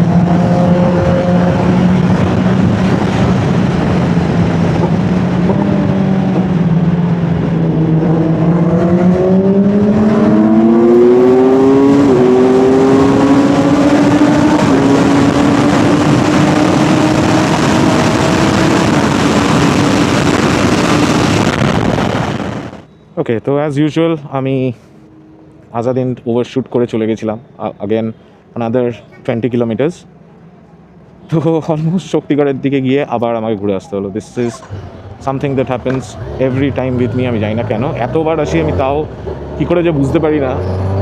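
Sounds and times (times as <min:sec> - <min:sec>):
motorcycle engine accelerating: 0:00.0 - 0:22.9, 0:34.8 - 0:41.0
rushing wind noise: 0:00.0 - 0:22.9.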